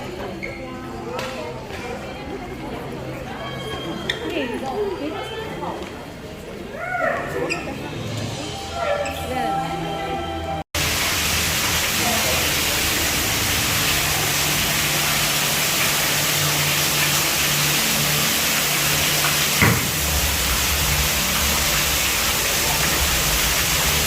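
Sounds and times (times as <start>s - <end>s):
waterfall rushing: 10.8s - 24.0s.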